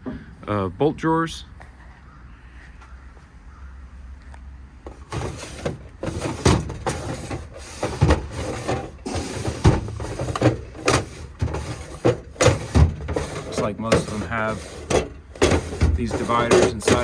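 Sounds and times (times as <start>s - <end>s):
metal drawers sliding and knocking: 4.9s - 17.0s.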